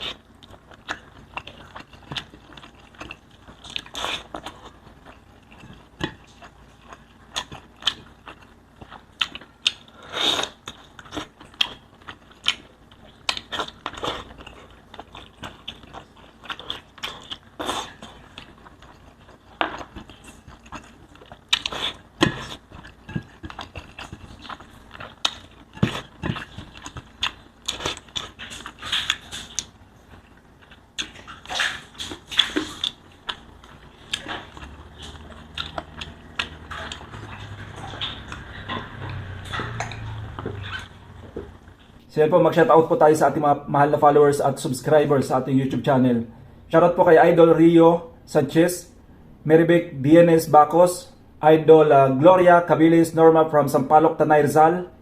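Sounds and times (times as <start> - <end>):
biting and chewing: 0.0 - 42.1
food crunching: 0.0 - 42.1.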